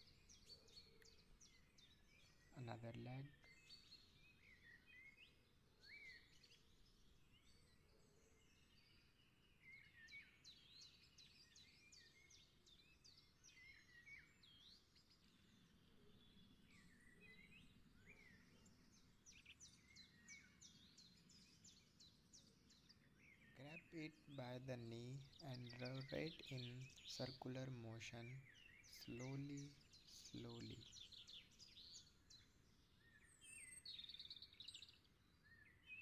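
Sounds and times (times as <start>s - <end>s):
birds chirping and whistling: 22.9s - 36.0s.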